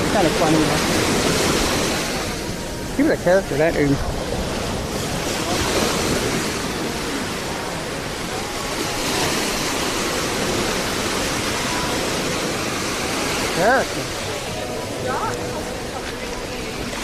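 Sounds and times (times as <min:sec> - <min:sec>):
ocean surf breaking on beach: 0:00.0 - 0:17.0.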